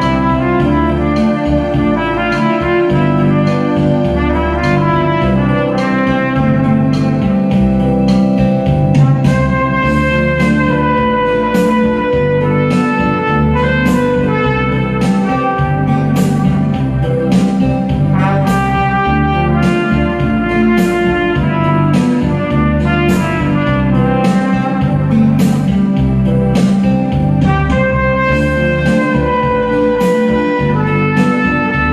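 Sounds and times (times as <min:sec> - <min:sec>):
backing track with guitar: 0:00.0 - 0:31.9
steady beat: 0:00.0 - 0:31.9
trumpet melody: 0:00.0 - 0:31.9.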